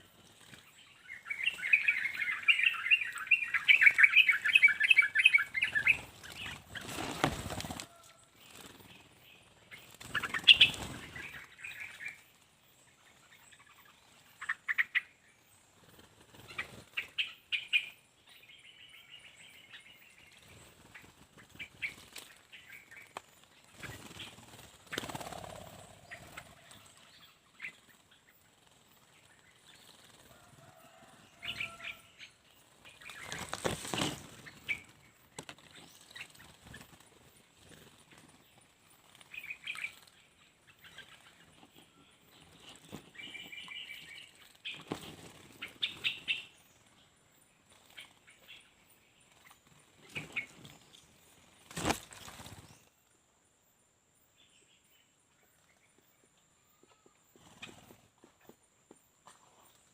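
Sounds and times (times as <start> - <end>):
bird wings fluttering and splashing: 3.5 - 9.1, 9.7 - 12.2, 16.1 - 17.1, 20.4 - 32.0, 32.8 - 41.4, 44.2 - 46.4, 51.6 - 52.7.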